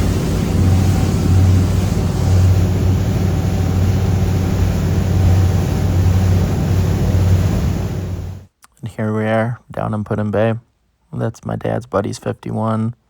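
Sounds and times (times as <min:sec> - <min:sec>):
boat diesel engines humming: 0:00.0 - 0:08.5
steady rushing noise: 0:00.0 - 0:08.5.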